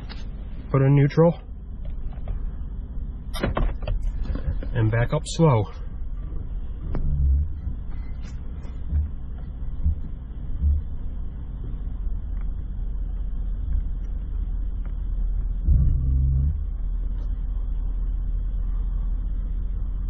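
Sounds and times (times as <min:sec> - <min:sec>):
vehicle rolling low rumble: 0:00.0 - 0:20.0
dull thumps: 0:06.3 - 0:11.9.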